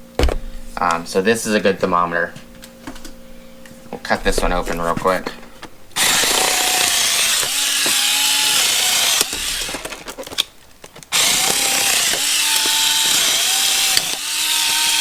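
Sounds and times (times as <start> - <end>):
power cutting tool cutting plastic: 6.0 - 15.0.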